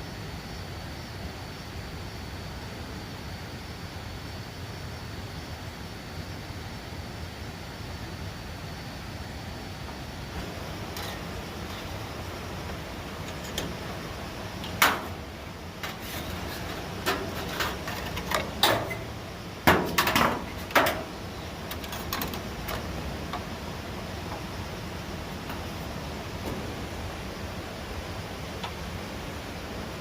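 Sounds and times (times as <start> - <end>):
irregular knocks and clatters: 10.4 - 15.2, 15.8 - 24.5.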